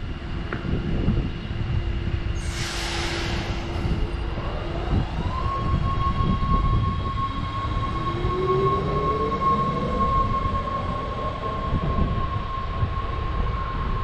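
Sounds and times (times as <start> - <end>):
air hiss: 2.4 - 4.2.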